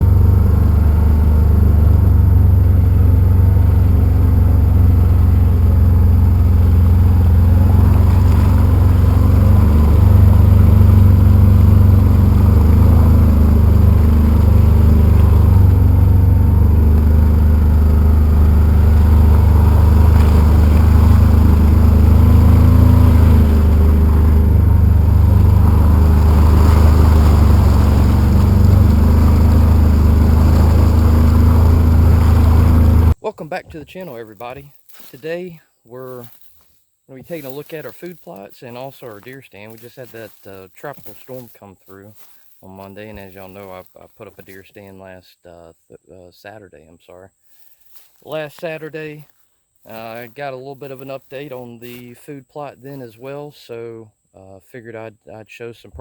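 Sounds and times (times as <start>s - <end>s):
utility vehicle engine running: 0.0s - 33.2s.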